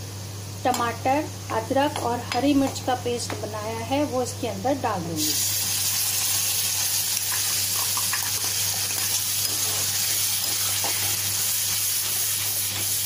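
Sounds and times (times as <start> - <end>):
paste sizzling in hot oil: 5.2 - 13.0.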